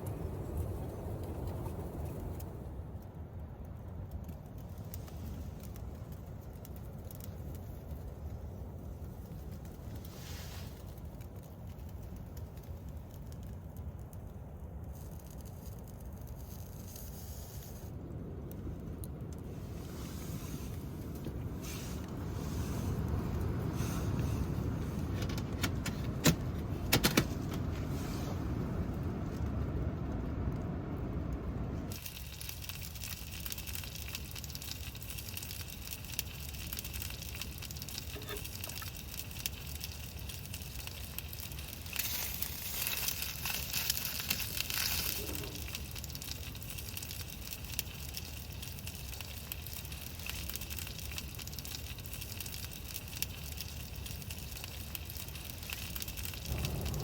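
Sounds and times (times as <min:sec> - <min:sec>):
wood fire crackling and popping: 0:00.0 - 0:57.0
hiss: 0:09.8 - 0:11.1, 0:14.9 - 0:18.0, 0:19.5 - 0:25.2, 0:31.9 - 0:57.0
low rumble: 0:17.8 - 0:32.0, 0:56.2 - 0:57.0.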